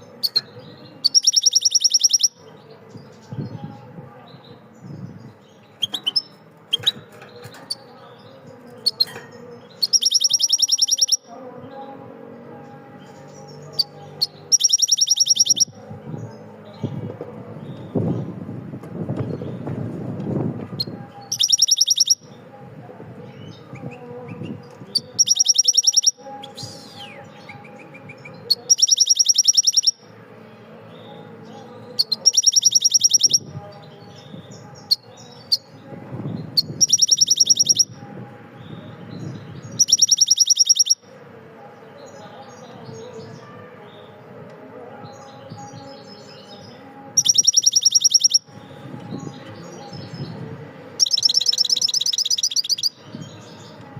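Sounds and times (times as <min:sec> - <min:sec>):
bird high-pitched trill: 0:00.2 - 0:02.4, 0:08.8 - 0:11.3, 0:13.4 - 0:15.8, 0:20.8 - 0:22.4, 0:24.4 - 0:30.0, 0:31.9 - 0:35.7, 0:36.6 - 0:38.0, 0:38.6 - 0:41.1, 0:45.4 - 0:50.3, 0:51.0 - 0:53.8
faint bird chirps: 0:00.2 - 0:02.4, 0:08.8 - 0:11.3, 0:13.7 - 0:15.7, 0:20.8 - 0:22.4, 0:25.0 - 0:30.0, 0:32.0 - 0:33.5, 0:36.6 - 0:37.9, 0:39.7 - 0:41.0, 0:46.4 - 0:50.2, 0:51.0 - 0:53.6.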